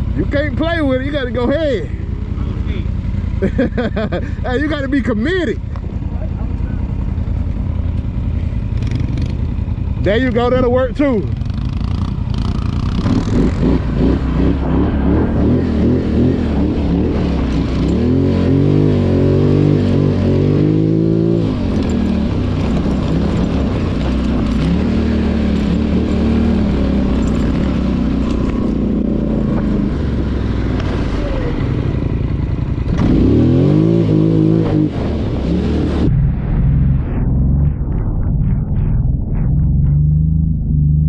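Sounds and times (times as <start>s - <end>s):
atv engine revving: 0.0s - 36.9s.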